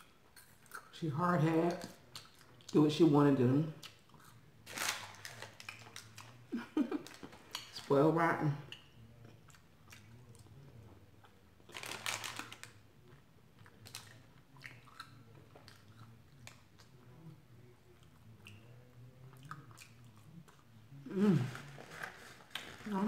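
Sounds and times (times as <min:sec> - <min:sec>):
person chewing food: 0:01.7 - 0:02.8, 0:03.8 - 0:07.8, 0:08.7 - 0:20.8.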